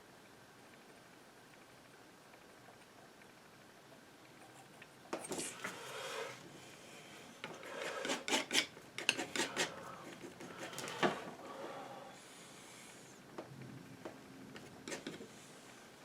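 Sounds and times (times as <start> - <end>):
painting knife scraping paint: 7.4 - 11.2, 14.6 - 15.3.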